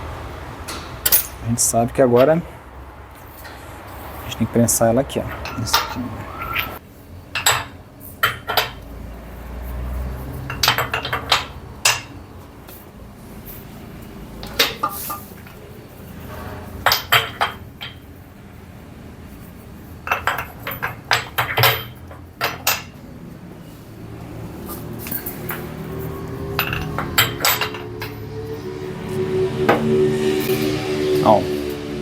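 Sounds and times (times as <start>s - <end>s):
metal tools clinking and knocking: 0.7s - 1.4s, 5.1s - 8.9s, 10.2s - 12.8s, 14.4s - 18.2s, 19.3s - 23.8s, 24.4s - 28.4s.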